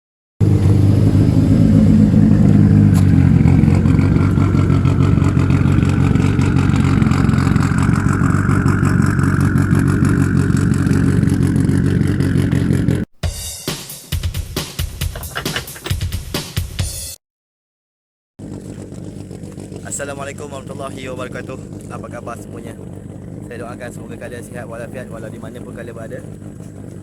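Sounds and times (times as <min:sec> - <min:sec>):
engine running: 0:15.1 - 0:16.2, 0:21.3 - 0:27.0.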